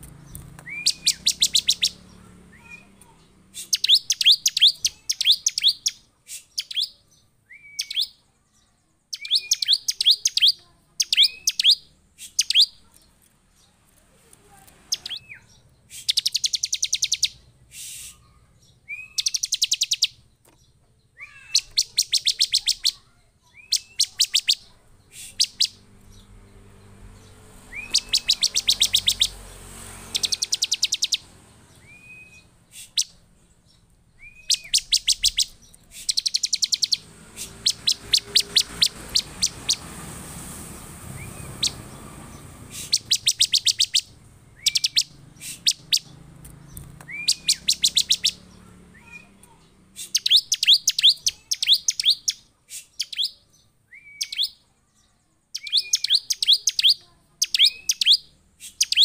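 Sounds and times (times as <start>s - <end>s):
bird calling with sharp chips: 0.0s - 13.8s, 14.4s - 26.4s, 27.2s - 40.0s, 41.0s - 59.0s.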